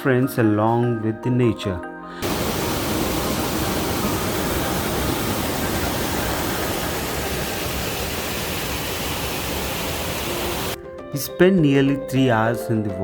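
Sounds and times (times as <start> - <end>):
waterfall roaring: 2.2 - 10.8.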